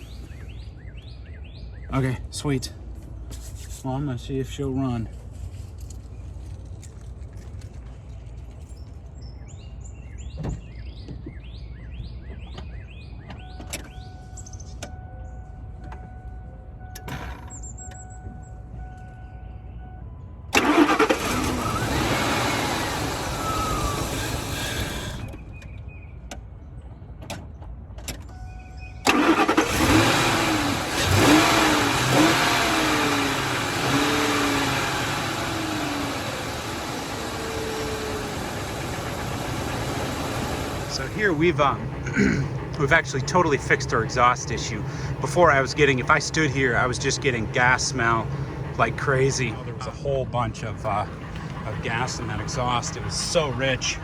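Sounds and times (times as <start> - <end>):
engine starting and revving: 20.6 - 25.4, 29.0 - 54.0.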